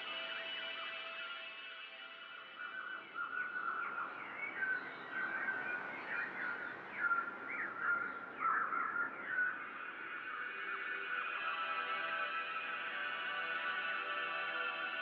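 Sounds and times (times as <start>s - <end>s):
small songbirds chirping: 2.4s - 13.6s.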